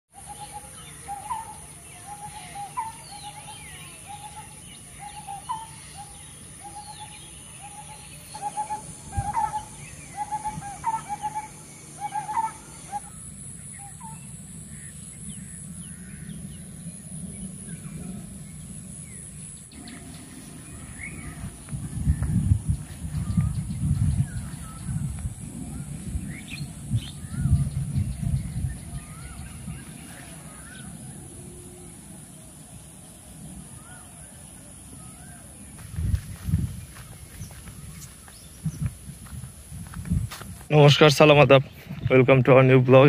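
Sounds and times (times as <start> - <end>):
birds chirping: 0.1 - 43.0
bird hooting call: 0.2 - 16.7
low steady hum: 0.2 - 43.0.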